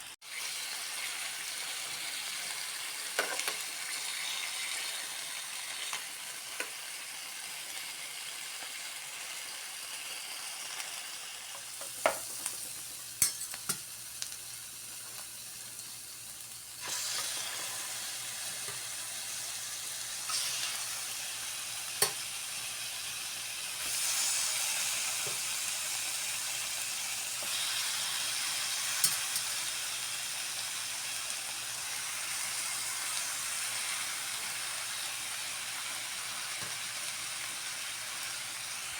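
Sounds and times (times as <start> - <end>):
food sizzling in a frying pan: 0.0 - 38.9
utensil clicking against pan: 22.0 - 22.2.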